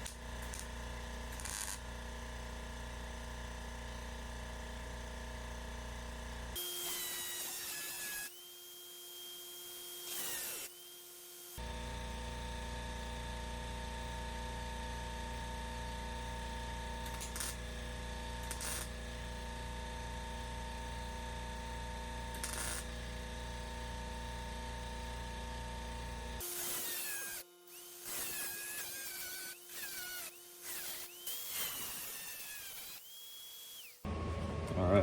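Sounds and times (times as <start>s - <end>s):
grinder cutting sheet metal: 1.4s - 1.8s, 6.6s - 8.4s, 9.2s - 11.6s, 17.1s - 17.6s, 18.4s - 19.0s, 22.4s - 22.9s, 26.4s - 34.0s.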